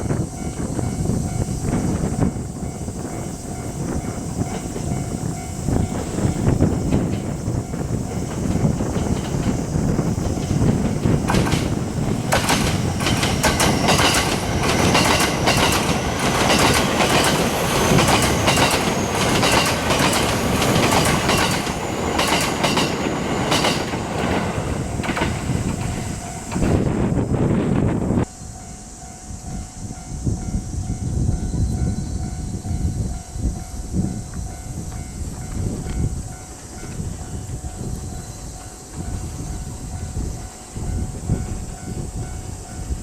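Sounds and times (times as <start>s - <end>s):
train rumble: 0.0s - 43.0s
wheels clacking over rail joints: 4.4s - 27.0s.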